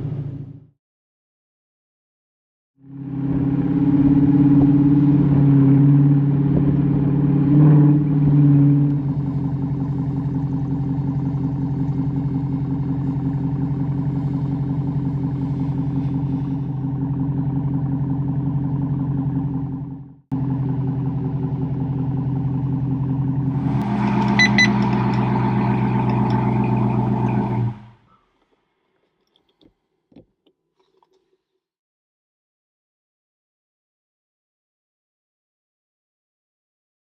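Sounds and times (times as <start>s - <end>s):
car engine revving and idling: 0.0s - 0.7s, 2.8s - 28.2s.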